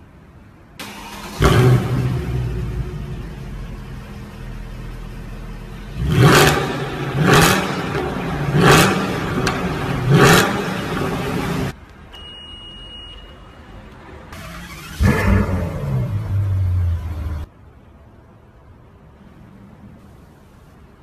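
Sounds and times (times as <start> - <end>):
car engine idling and revving: 0.8 - 11.8, 14.3 - 17.5
electronic beep: 12.2 - 13.5.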